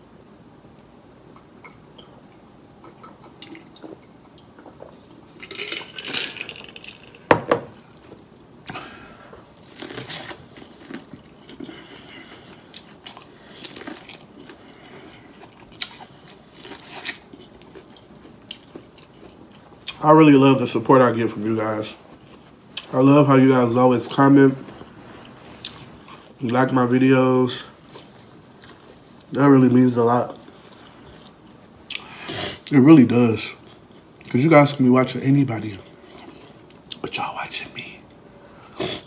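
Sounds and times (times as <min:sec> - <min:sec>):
chewing corn on the cob: 0:09.5 - 0:20.0.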